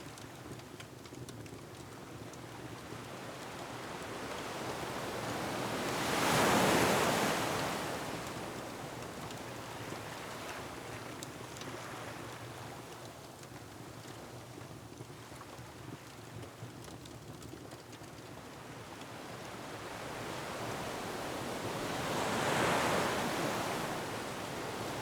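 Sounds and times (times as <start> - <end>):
wood fire crackling: 0.0 - 5.3, 8.2 - 20.2
waves breaking on rocky shore: 19.8 - 25.0.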